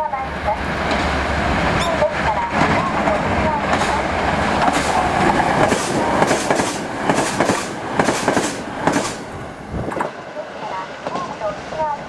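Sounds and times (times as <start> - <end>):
train wheels clattering over rail joints: 3.6 - 9.3.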